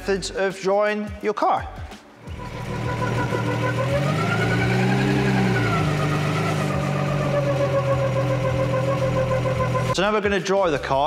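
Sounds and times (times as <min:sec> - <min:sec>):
car engine running: 0:02.2 - 0:10.0.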